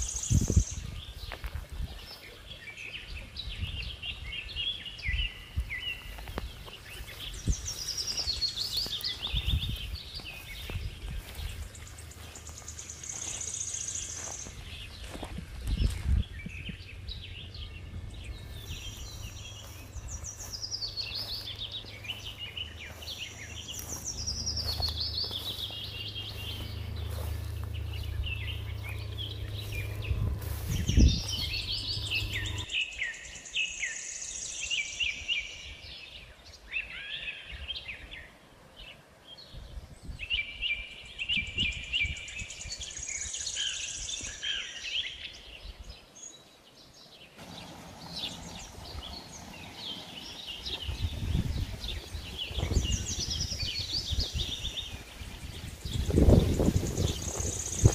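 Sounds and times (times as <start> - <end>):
songbirds singing and chirping: 0.0 - 57.9
low steady rumble: 16.7 - 32.7, 47.4 - 57.9.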